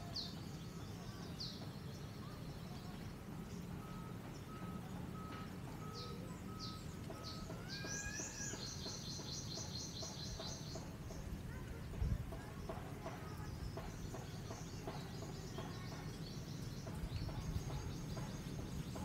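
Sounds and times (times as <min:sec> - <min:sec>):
bird trill: 0:00.0 - 0:11.3, 0:12.6 - 0:19.0
birds chirping: 0:00.0 - 0:19.0
whistled bird notes: 0:03.6 - 0:10.9.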